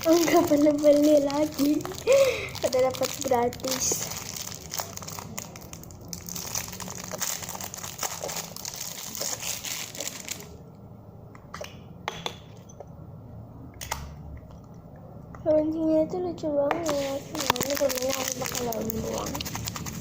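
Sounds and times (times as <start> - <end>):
packaging crinkling and rustling: 0.0 - 10.6, 16.8 - 20.0.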